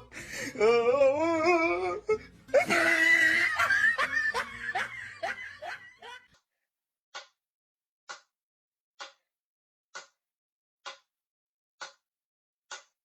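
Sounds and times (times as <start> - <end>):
person laughing loudly: 0.0 - 6.3.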